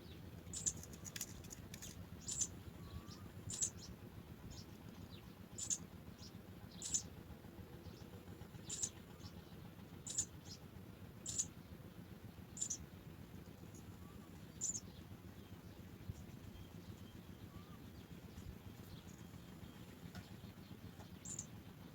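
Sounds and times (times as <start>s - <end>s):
sparrow chirping: 0.0s - 7.2s, 7.8s - 11.8s, 12.4s - 13.0s, 13.6s - 21.7s
low steady hum: 0.0s - 21.9s.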